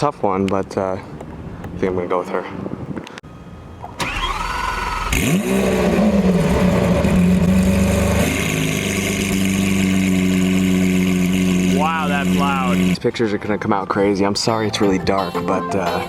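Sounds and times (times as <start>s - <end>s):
starter motor whining: 3.8s - 11.7s
car engine revving and idling: 3.8s - 13.0s.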